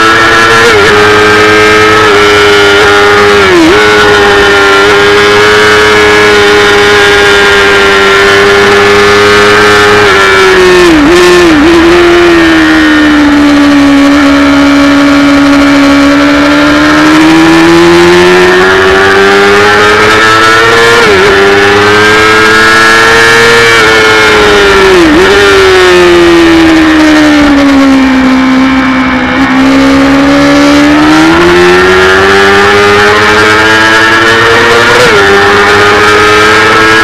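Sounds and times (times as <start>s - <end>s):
motorcycle engine at high revs: 0.0s - 37.0s.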